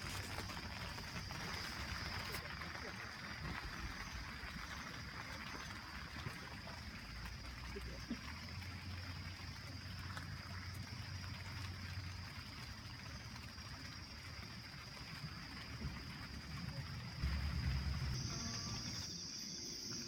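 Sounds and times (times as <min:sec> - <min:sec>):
flowing river water: 0:00.0 - 0:20.0
high insect trill: 0:16.6 - 0:20.0.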